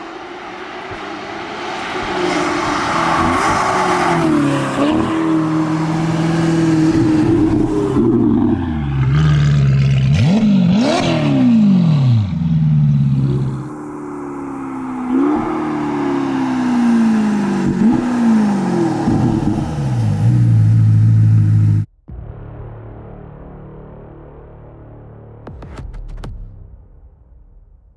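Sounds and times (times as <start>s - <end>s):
sports car engine revving: 0.6s - 21.9s.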